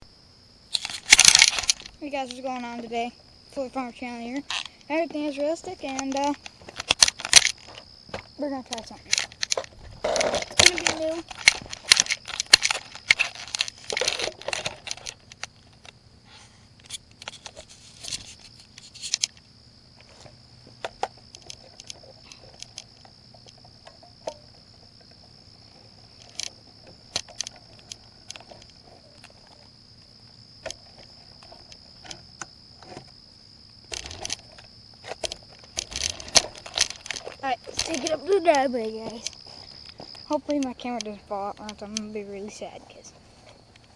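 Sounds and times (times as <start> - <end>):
things being handled clicking: 0.7 - 2.4, 5.6 - 7.9, 8.6 - 16.0, 16.8 - 19.4, 20.0 - 29.7, 33.9 - 42.8.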